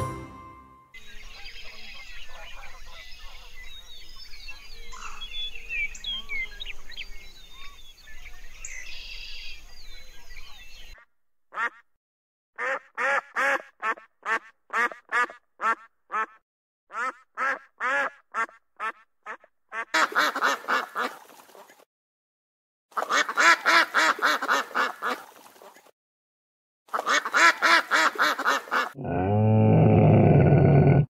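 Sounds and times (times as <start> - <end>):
duck honking calls: 11.5 - 11.8, 12.6 - 21.2, 23.0 - 25.2, 26.9 - 29.0.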